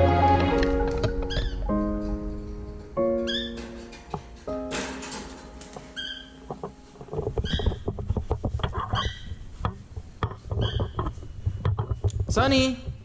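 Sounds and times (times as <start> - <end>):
low rumble: 0.5 - 3.9
handling clicks and rustling: 2.0 - 13.0.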